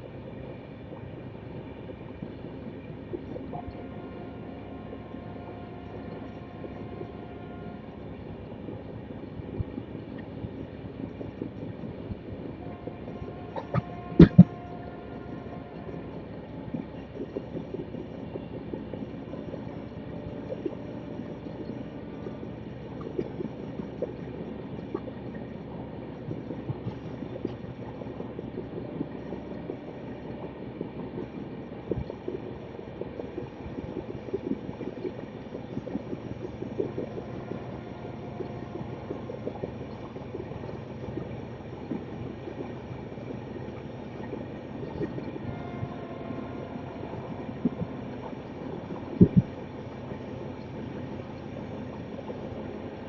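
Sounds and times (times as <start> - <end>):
train rumbling with rattles: 0.0 - 53.0.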